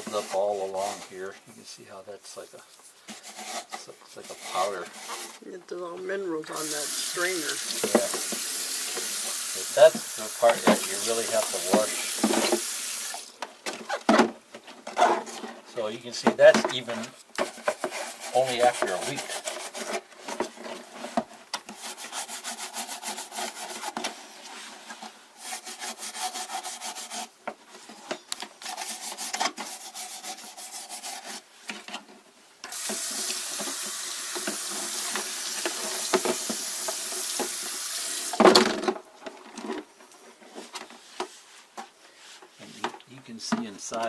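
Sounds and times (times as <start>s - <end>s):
scrubbing strokes: 6.5s - 13.3s, 17.6s - 19.9s, 21.7s - 27.4s, 28.6s - 31.5s
tap running into a sink: 6.9s - 12.7s, 32.7s - 38.4s.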